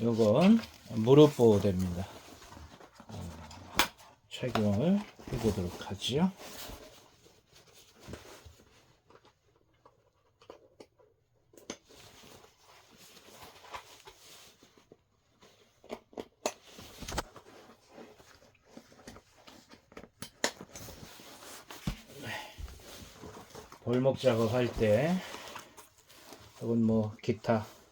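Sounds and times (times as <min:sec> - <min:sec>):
faint rustling: 0:16.7 - 0:27.9.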